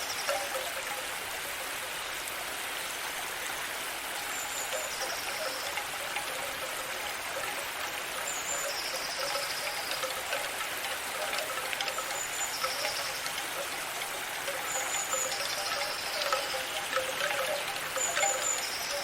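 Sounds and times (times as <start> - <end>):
crickets trilling: 0.0 - 19.0
running water rushing: 0.0 - 19.0.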